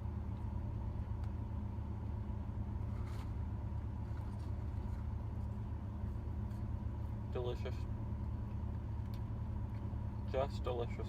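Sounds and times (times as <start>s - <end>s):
faint soft rustle: 2.7s - 7.2s.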